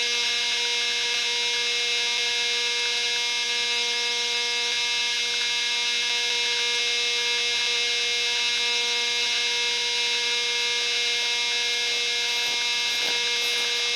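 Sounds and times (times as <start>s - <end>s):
electric motor humming: 9.2s - 13.9s.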